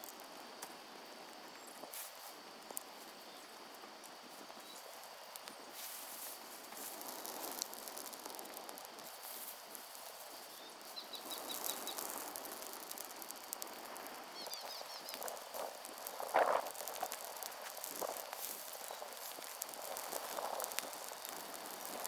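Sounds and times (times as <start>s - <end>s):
fine ticks and crackles: 0.0s - 22.0s
small bird chirping: 10.4s - 22.0s.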